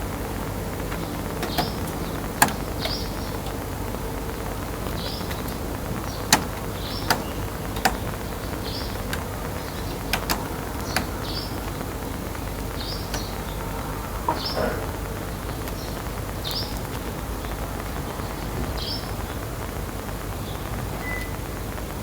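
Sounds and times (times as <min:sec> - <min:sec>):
sparrow chirping: 0:00.2 - 0:17.6
sharp clicks or taps: 0:00.8 - 0:03.7, 0:04.7 - 0:11.4.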